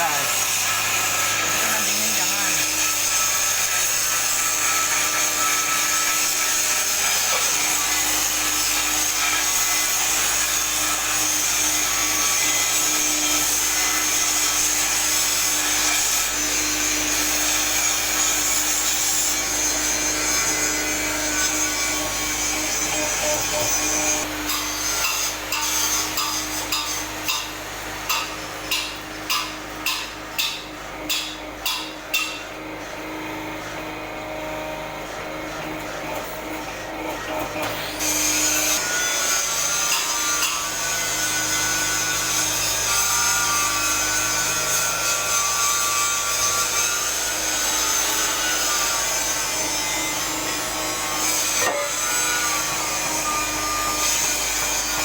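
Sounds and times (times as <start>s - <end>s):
harsh grinding: 0.0s - 30.7s
regular short tool strokes: 0.0s - 32.6s, 34.5s - 55.0s.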